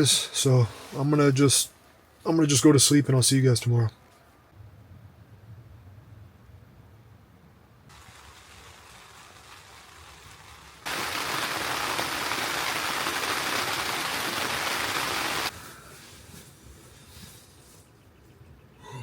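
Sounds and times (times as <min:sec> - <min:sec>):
heavy rain pouring: 0:07.9 - 0:15.5.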